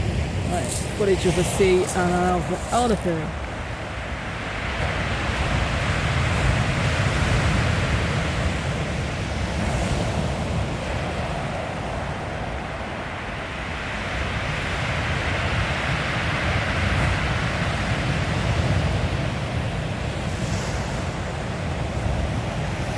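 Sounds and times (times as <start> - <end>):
wind buffeting microphone: 0.0 - 22.9
sea waves breaking on shingle: 0.1 - 3.7.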